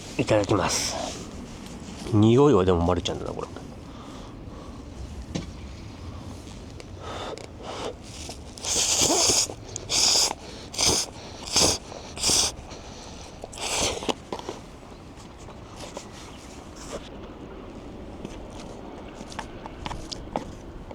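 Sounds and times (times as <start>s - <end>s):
chewing: 6.7s - 14.7s
person slurping noodles: 7.6s - 14.2s.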